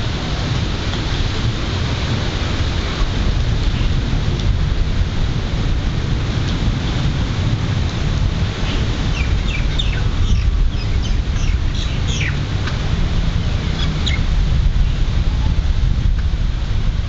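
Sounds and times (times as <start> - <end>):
low wind rumble on microphone: 0.0 - 17.0
bird chirping: 9.1 - 12.4.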